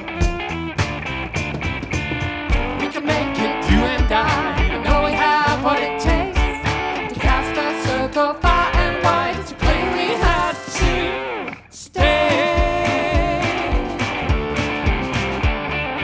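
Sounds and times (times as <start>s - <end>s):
steady beat: 0.0s - 11.4s, 12.0s - 15.6s
guitars playing: 0.0s - 16.0s
live band music: 9.1s - 15.5s
wavering melody line: 9.6s - 15.4s.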